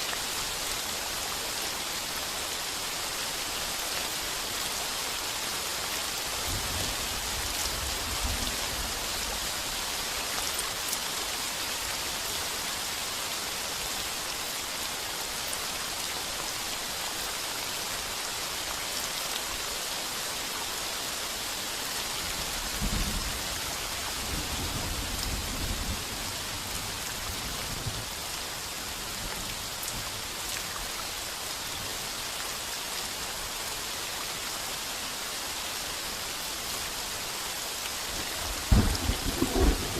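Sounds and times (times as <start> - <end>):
heavy rain on a tin roof: 0.0 - 39.9
thunder rumbling: 38.6 - 39.9.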